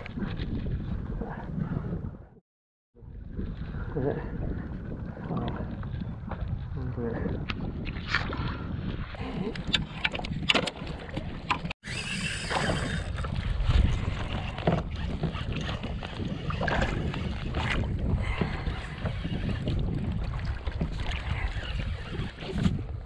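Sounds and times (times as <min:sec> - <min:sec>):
wind rumbling on microphone: 0:00.0 - 0:02.4, 0:03.0 - 0:23.0.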